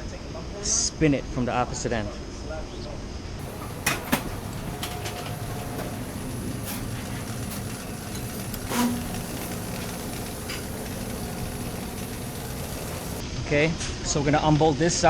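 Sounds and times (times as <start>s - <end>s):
machinery droning: 3.4s - 13.2s.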